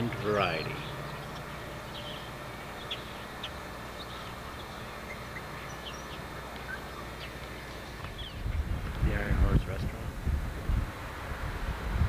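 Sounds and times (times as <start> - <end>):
small birds chirping: 0.0 - 9.0
low hum: 0.0 - 12.0
outdoor background noise: 0.0 - 12.0.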